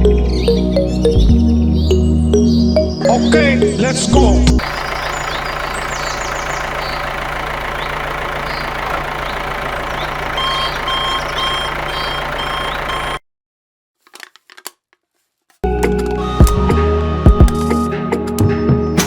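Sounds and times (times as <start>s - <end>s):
machine humming: 4.6s - 13.2s
short beeps: 10.4s - 13.2s.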